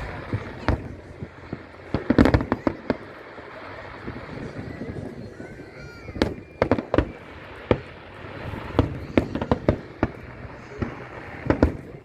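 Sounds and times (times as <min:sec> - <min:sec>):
firecracker bangs: 0:00.0 - 0:12.0.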